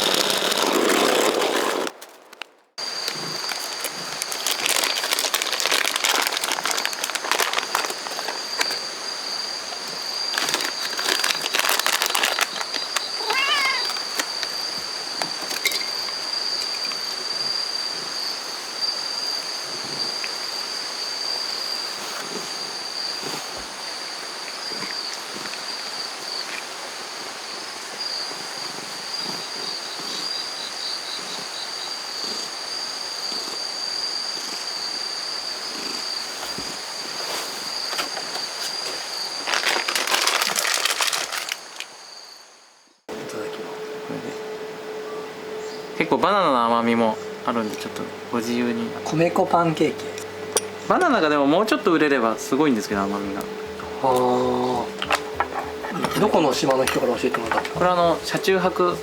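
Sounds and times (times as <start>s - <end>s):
rustling crackling noise: 0.0s - 17.5s, 35.8s - 42.0s
insects droning: 0.0s - 59.0s.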